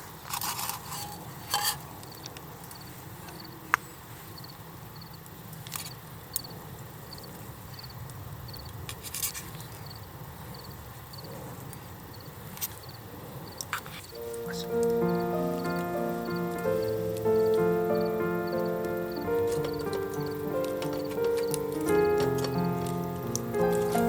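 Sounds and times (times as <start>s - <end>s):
faint high chirp: 14.2s - 16.5s
wood fire popping: 16.9s - 24.0s.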